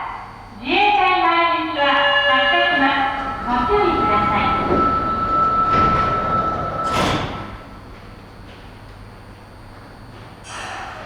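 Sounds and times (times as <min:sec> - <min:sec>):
steady tone: 0:01.6 - 0:08.8
train doors sliding shut: 0:01.6 - 0:10.7.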